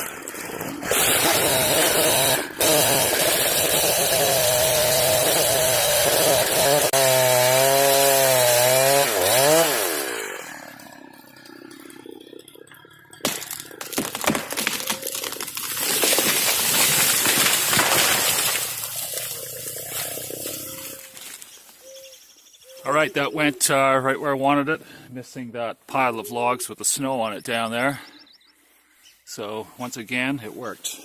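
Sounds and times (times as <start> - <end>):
tree cracking and falling: 0.0 - 12.4, 13.0 - 21.8
chainsaw running: 0.0 - 21.4.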